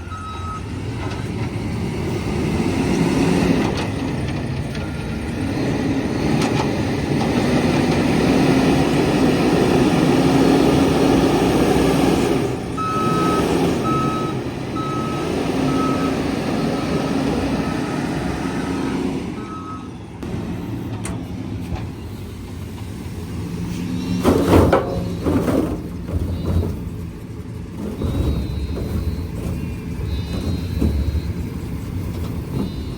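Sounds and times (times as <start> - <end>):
reversing alarm beeping: 0.0 - 0.8, 12.8 - 20.2, 27.8 - 32.9
diesel engine working hard: 0.0 - 32.9.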